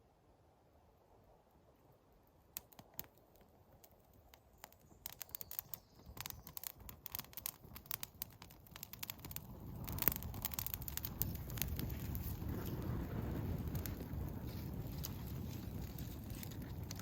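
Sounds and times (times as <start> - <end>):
sharp clicks and crackles: 2.5 - 17.0.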